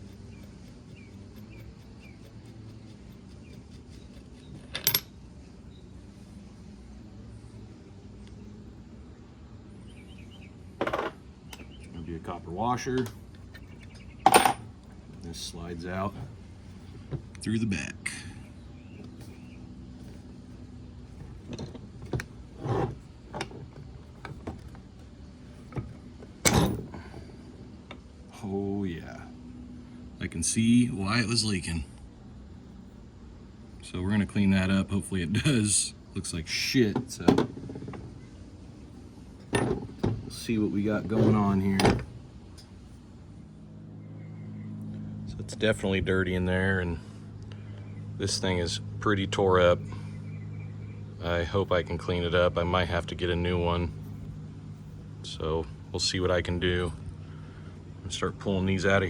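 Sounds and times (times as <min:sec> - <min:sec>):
steady low hum: 0:00.0 - 0:59.0
metal parts clicking and scraping: 0:00.1 - 0:05.2
small metal parts clinking: 0:03.9 - 0:05.2, 0:13.0 - 0:14.9.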